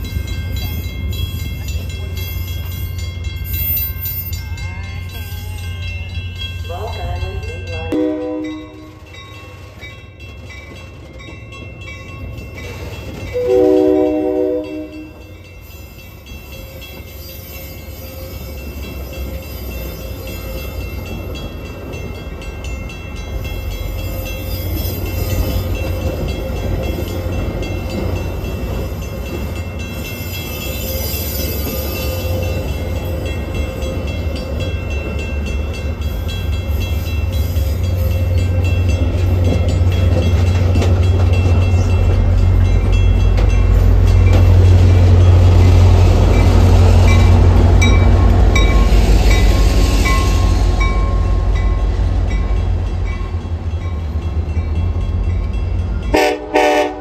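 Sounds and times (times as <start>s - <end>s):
passing train rumble: 0.0s - 57.0s
train horn blast: 7.9s - 9.0s, 13.4s - 15.3s, 56.1s - 57.0s.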